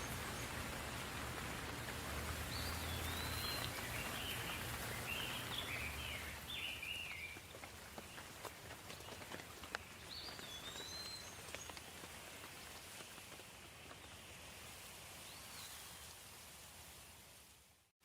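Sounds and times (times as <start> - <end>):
raindrops ticking close by: 0.0 - 15.2
soft steady rain: 0.0 - 18.0
bird chirping: 2.5 - 7.4, 9.7 - 11.8.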